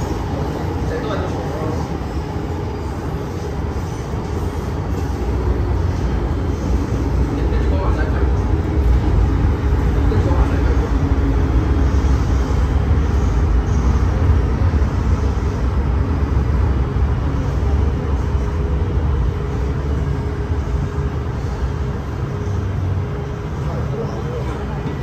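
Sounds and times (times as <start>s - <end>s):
train low rumble: 0.0s - 25.0s.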